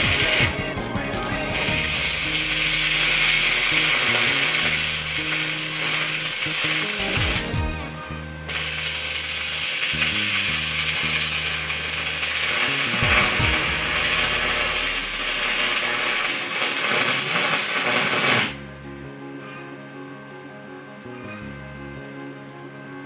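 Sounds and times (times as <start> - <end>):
arc welding crackling sizzle: 0.0 - 7.6, 8.5 - 18.6.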